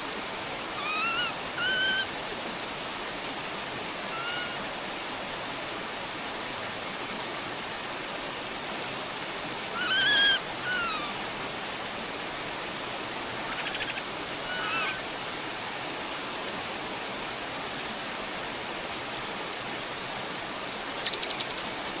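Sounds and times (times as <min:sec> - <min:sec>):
bird calls: 0:00.8 - 0:02.1, 0:04.1 - 0:04.6, 0:09.7 - 0:11.2, 0:13.5 - 0:15.0, 0:21.0 - 0:21.7.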